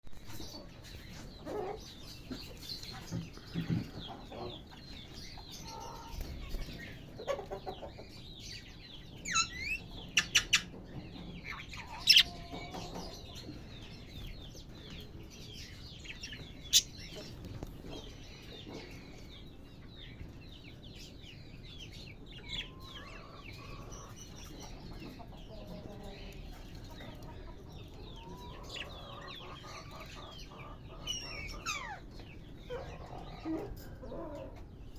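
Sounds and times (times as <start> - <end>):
budgerigars chattering: 9.3 - 10.8, 11.4 - 13.0, 16.1 - 17.3
sharp bird calls: 11.6 - 13.0, 16.2 - 17.2.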